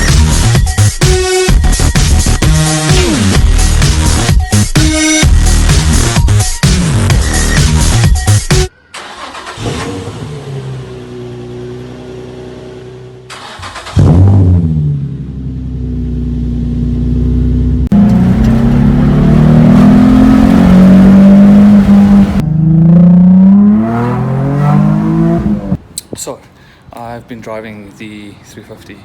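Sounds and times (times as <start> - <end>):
car engine revving through exhaust: 14.0 - 25.8.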